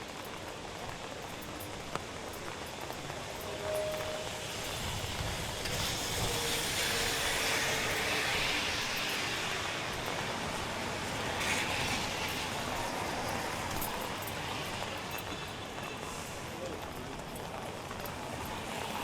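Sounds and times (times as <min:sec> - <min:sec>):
steady rain: 0:00.0 - 0:19.0
car tyres hissing on wet road: 0:03.5 - 0:17.0, 0:18.1 - 0:19.0.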